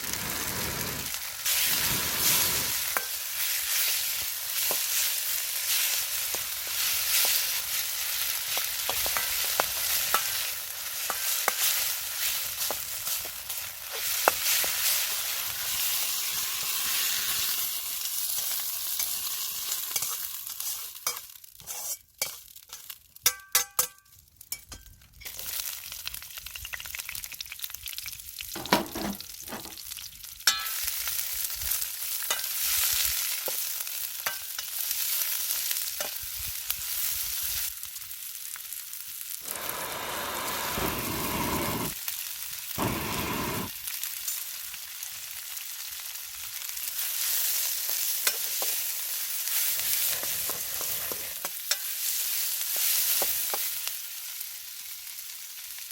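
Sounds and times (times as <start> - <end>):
food sizzling in a wok: 0.0 - 55.9
utensil clinking against wok: 19.9 - 25.5, 30.4 - 30.9, 32.2 - 32.6, 34.2 - 34.8, 48.2 - 48.8, 50.2 - 52.0.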